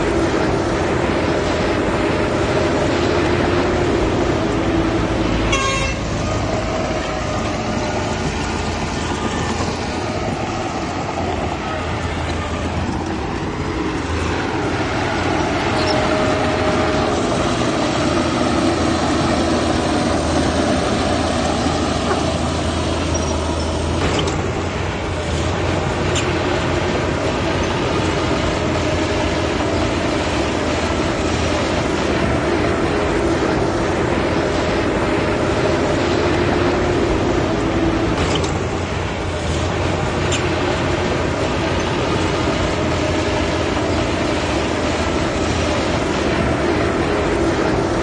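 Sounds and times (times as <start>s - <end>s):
heavy diesel engines running: 0.0s - 48.0s
vehicle horn toot: 5.5s - 6.1s.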